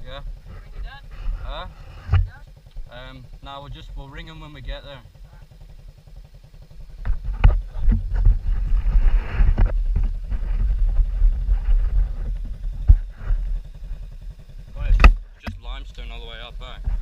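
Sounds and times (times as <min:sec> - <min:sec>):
wind rumbling on microphone: 0:00.0 - 0:02.9, 0:06.9 - 0:17.0
pit bike engine running: 0:00.0 - 0:17.0.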